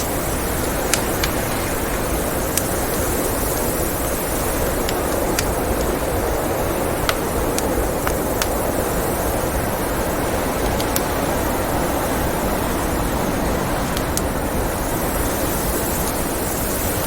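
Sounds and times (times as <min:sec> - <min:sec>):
blizzard wind rushing: 0:00.0 - 0:17.0
wood fire crackling: 0:00.0 - 0:17.0.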